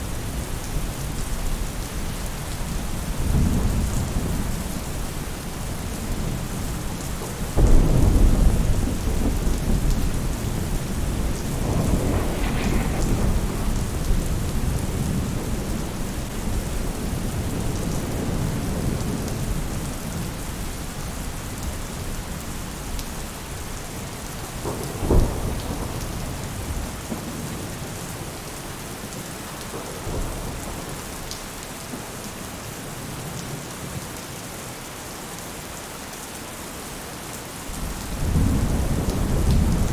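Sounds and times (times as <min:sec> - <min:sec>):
rain on a roof: 0:00.0 - 0:39.9
thunder rumbling: 0:02.8 - 0:20.3, 0:24.5 - 0:28.4, 0:37.7 - 0:39.9.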